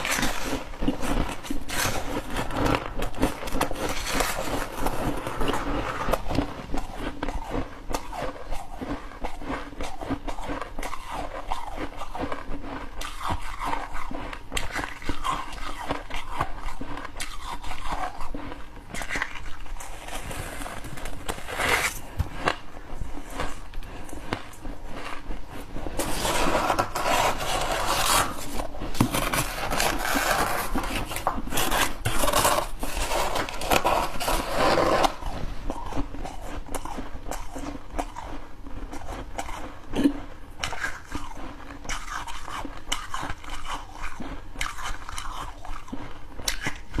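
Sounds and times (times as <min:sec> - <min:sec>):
person chewing frost crunchily: 0:00.0 - 0:47.0.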